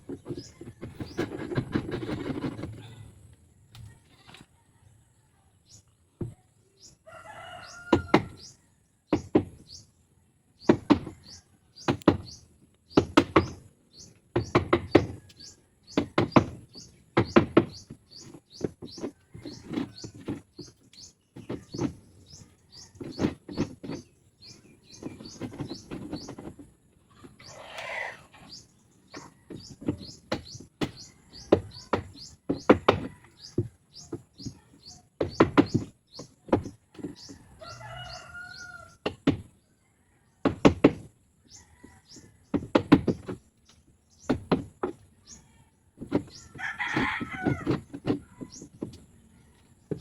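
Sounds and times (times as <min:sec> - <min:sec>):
bird or rooster call: 0:07.0 - 0:08.8, 0:27.4 - 0:28.6, 0:36.9 - 0:39.2, 0:46.3 - 0:48.6.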